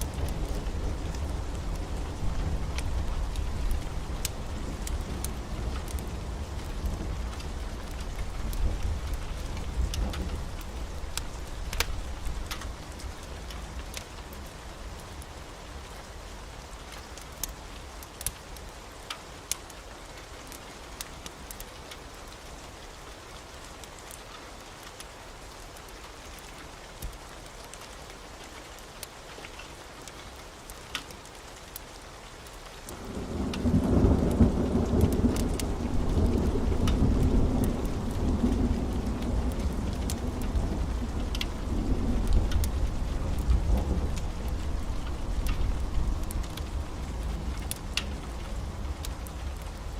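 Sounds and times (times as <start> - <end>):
thunder rumble: 0.0 - 13.3, 33.0 - 49.9
raindrop ticks: 0.0 - 49.9
steady rain: 0.0 - 49.9.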